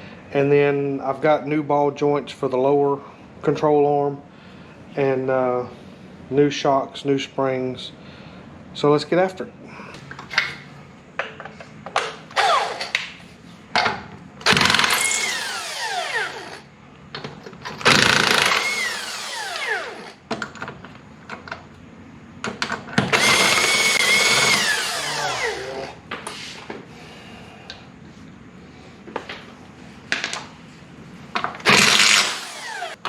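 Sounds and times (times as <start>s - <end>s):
power tool motor whining: 12.4s - 13.0s, 14.4s - 16.6s, 17.8s - 20.2s, 23.1s - 26.0s, 31.6s - 33.0s.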